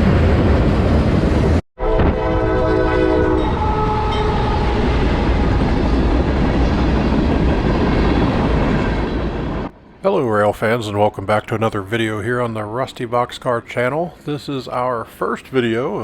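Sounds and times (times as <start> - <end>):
train cars rumbling over rails: 0.0 - 16.0
locomotive air horn: 1.8 - 5.6.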